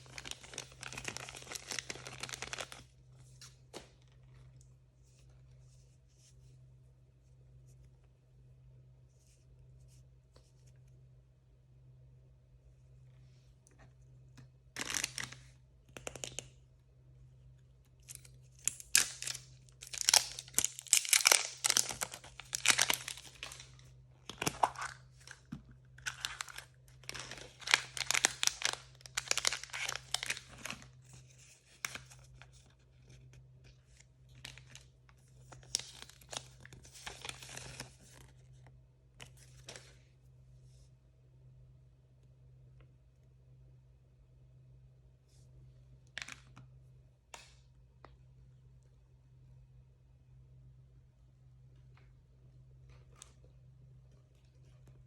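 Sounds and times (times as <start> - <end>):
plastic packaging tearing and crinkling: 0.0 - 2.8, 14.8 - 15.4, 18.2 - 23.7, 26.0 - 30.9.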